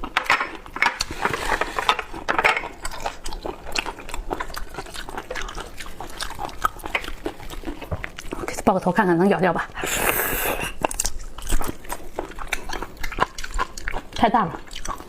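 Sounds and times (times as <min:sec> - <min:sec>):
chewing with wet clicks: 0:02.0 - 0:09.1, 0:10.7 - 0:15.0.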